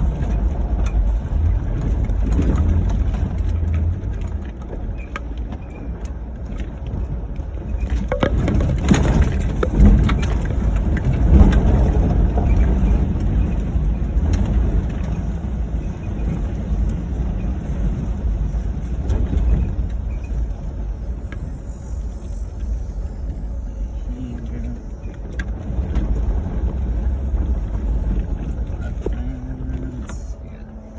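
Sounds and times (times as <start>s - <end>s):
car knocks and rattles: 0.0s - 21.0s
engine and tyres rumbling: 0.0s - 30.9s.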